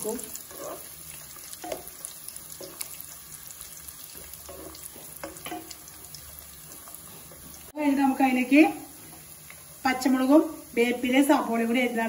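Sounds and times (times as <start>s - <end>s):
onions sizzling in hot oil: 0.0s - 12.0s
wooden spatula scraping pan: 0.3s - 1.0s, 4.1s - 5.8s.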